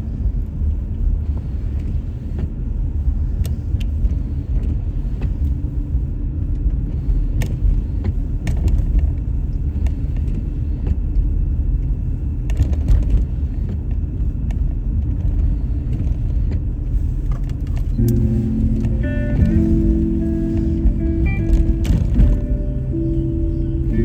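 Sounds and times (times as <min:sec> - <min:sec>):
car tyres and engine rumbling: 0:00.0 - 0:24.0
music: 0:18.0 - 0:24.0.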